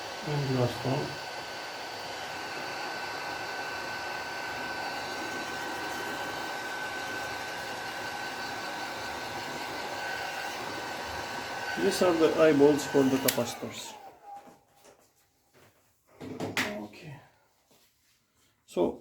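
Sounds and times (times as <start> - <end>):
heat gun blowing air: 0.0 - 14.4.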